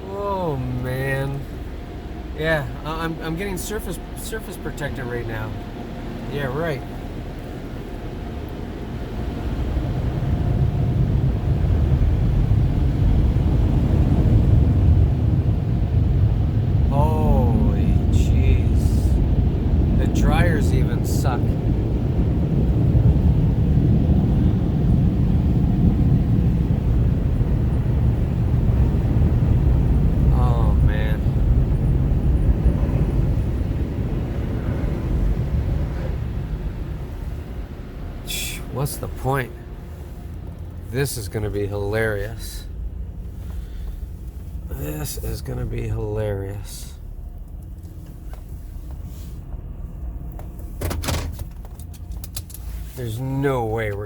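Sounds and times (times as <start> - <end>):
minivan engine idling: 0.0 - 54.0.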